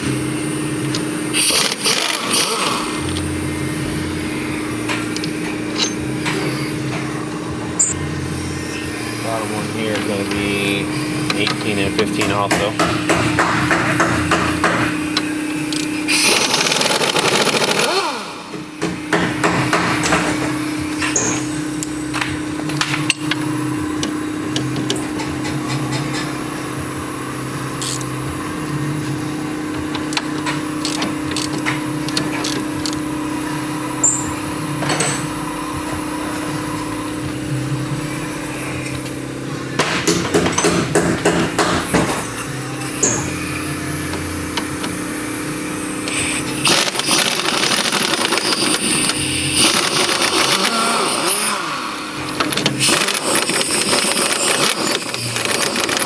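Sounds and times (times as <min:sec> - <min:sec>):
steady hum: 0:00.0 - 0:56.0
ratchet clicking: 0:00.8 - 0:06.7, 0:11.0 - 0:18.4, 0:27.8 - 0:28.2, 0:29.8 - 0:33.2, 0:40.0 - 0:56.0
rattling tool noise: 0:00.9 - 0:26.5, 0:27.7 - 0:28.2, 0:29.6 - 0:33.1, 0:38.4 - 0:56.0.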